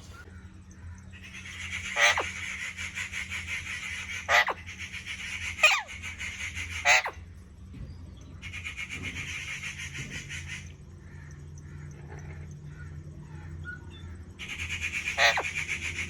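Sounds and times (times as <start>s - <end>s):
parrot squawks: 1.3s - 7.2s, 14.4s - 16.0s.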